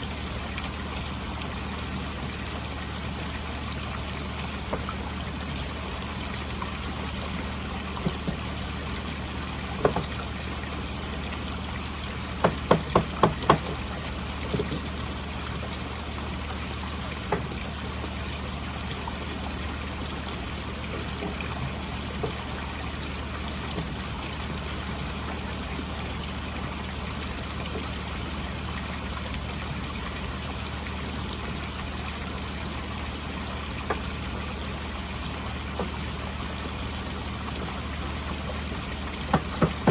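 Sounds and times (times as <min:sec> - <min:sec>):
pond water trickling: 0:00.0 - 0:39.9
sharp knocks: 0:09.8 - 0:10.2, 0:12.4 - 0:13.8, 0:39.3 - 0:39.9.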